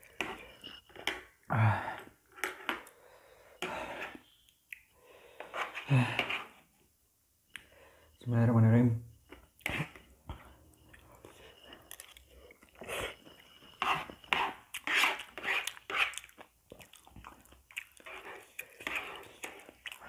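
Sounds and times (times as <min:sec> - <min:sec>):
metal spoon scraping plastic plate: 0:13.7 - 0:16.2, 0:18.1 - 0:19.6
chewing and biting noodles: 0:14.7 - 0:20.0.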